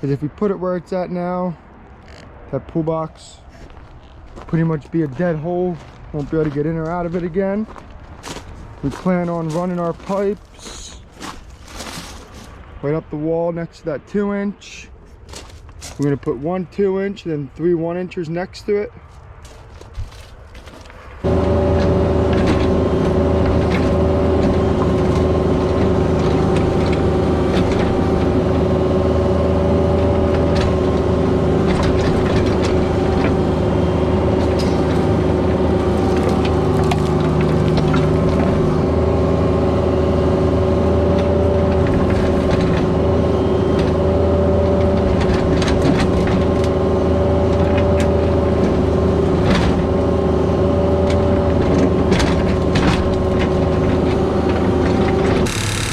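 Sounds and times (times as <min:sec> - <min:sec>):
excavator diesel engine running: 0:03.4 - 0:12.0, 0:21.2 - 0:55.9.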